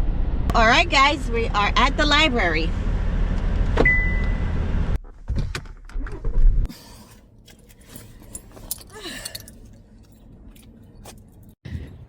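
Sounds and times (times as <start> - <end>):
low rumble: 0.0 - 6.7
handling clicks and rattles: 7.4 - 11.6
keys jangling: 7.5 - 11.6.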